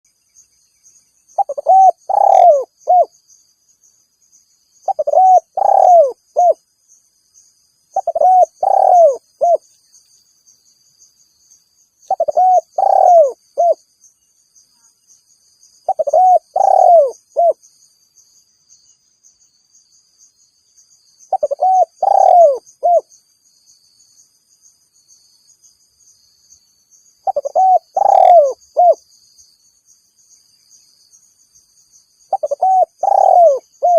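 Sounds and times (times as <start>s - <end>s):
dove cooing: 1.4s - 3.1s, 4.8s - 6.6s, 8.0s - 9.6s, 12.1s - 13.8s, 15.9s - 17.6s, 21.3s - 23.1s, 27.2s - 29.0s, 32.3s - 33.9s.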